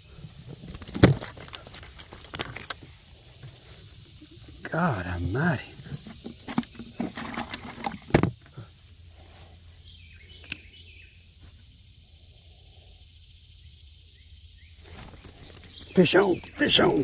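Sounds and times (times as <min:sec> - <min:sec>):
bird chirps: 0:09.3 - 0:17.0
small click: 0:10.4 - 0:10.7.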